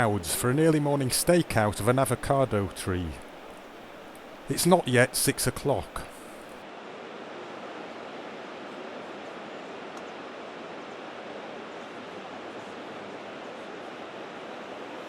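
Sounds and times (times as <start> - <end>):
rushing background noise: 0.0 - 6.6.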